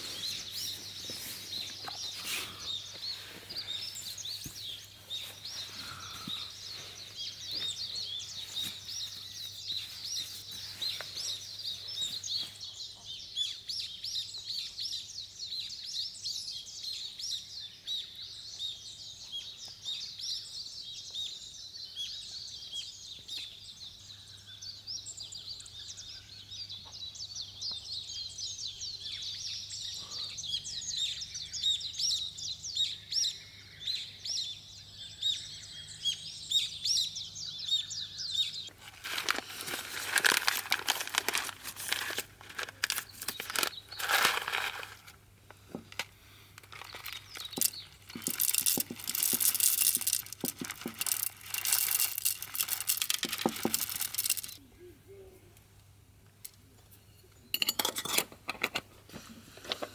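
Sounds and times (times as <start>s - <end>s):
rustling handling noises: 0.0s - 12.6s, 38.7s - 54.6s
high chirping calls: 0.0s - 15.0s.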